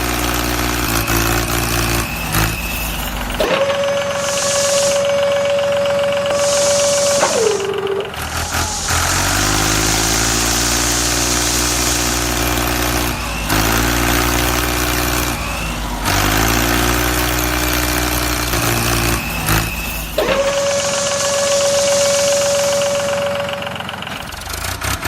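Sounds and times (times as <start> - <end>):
vehicle engine revving: 0.0 - 25.0.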